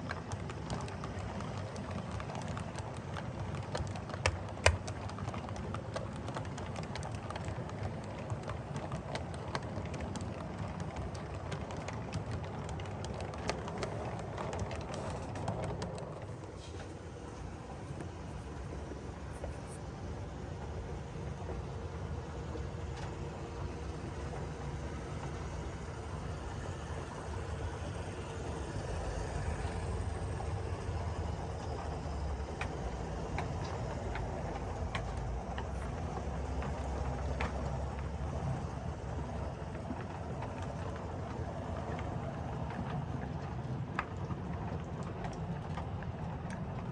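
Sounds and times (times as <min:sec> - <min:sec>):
model train rumbling: 0:00.0 - 0:46.8
wheels clicking over rail joints: 0:00.0 - 0:46.9.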